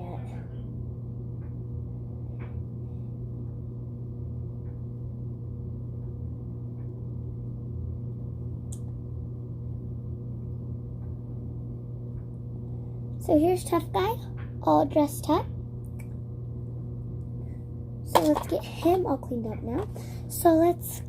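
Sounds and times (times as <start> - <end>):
steady low hum: 0.0 - 21.0
faint small clicks: 8.7 - 9.0.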